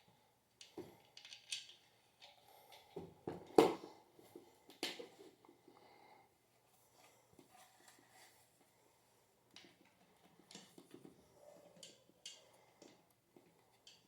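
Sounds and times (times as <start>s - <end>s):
small metal parts clicking: 1.1s - 1.9s.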